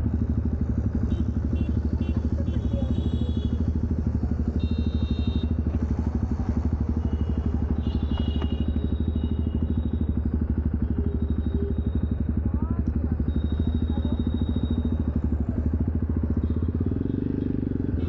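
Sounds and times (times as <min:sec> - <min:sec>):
motorcycle engine exhaust thumping: 0:00.1 - 0:18.0.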